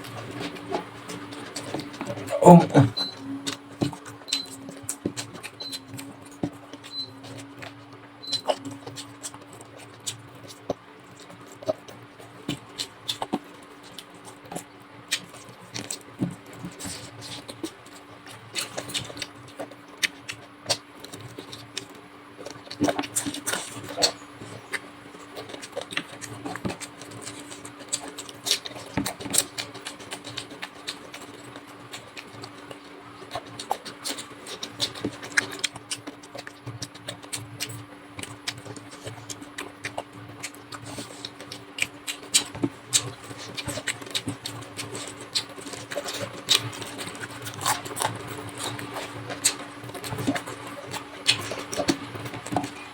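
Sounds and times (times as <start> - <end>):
steady low hum: 0.0 - 3.6
wet chewing and mouth clicks: 0.0 - 16.0, 16.6 - 52.9.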